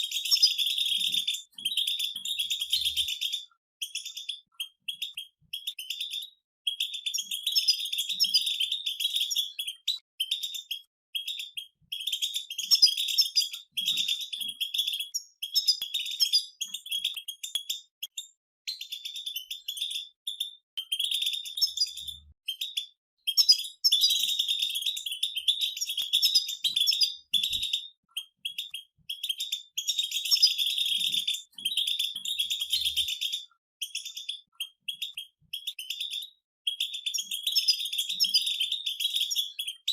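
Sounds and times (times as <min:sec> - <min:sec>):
goldfinches twittering: 0:00.0 - 0:06.2, 0:11.2 - 0:17.8, 0:18.8 - 0:36.2.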